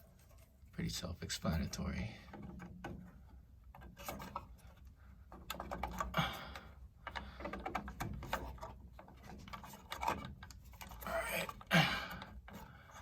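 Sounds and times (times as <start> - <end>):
hands rustling wires: 0.0 - 0.8.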